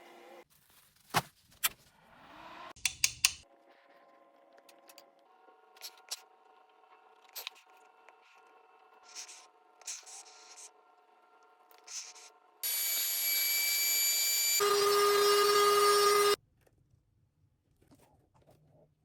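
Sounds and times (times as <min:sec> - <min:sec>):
tool hissing with whine: 0:11.8 - 0:16.4.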